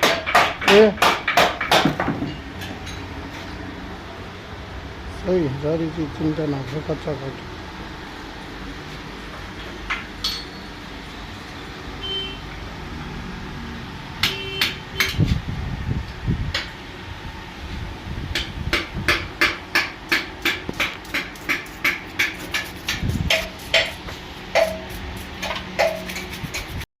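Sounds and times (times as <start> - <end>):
hammer striking metal: 0.0 - 3.1, 9.9 - 10.7, 14.2 - 15.3, 18.3 - 26.7.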